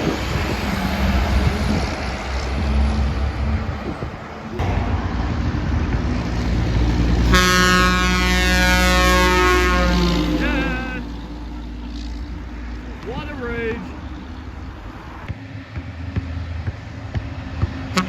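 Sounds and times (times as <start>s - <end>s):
truck traffic rumble: 0.0s - 18.0s
truck air horn: 6.4s - 15.0s.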